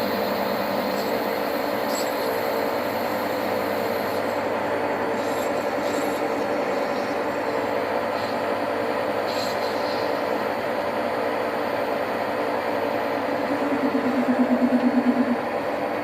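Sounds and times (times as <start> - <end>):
metal lathe humming: 12.0 - 16.0.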